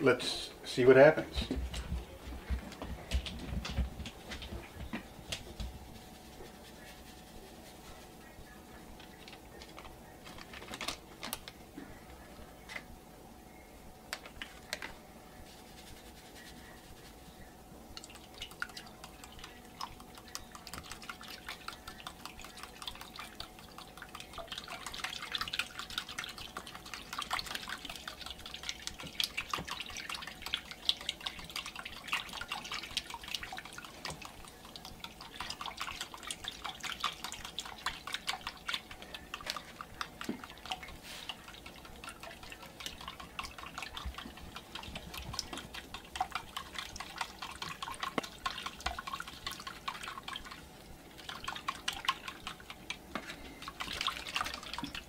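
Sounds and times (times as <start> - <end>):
fork stirring water in bowl: 18.0 - 55.0.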